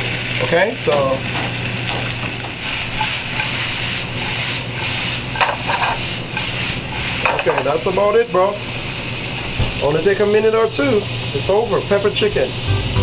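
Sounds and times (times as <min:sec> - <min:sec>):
food sizzling in a frying pan: 0:00.0 - 0:13.0
pan being tossed and stirred: 0:00.8 - 0:09.9.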